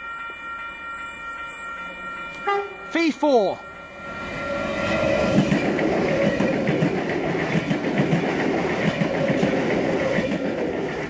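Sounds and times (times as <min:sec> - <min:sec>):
train wheels clicking over rail joints: 0:05.2 - 0:11.0.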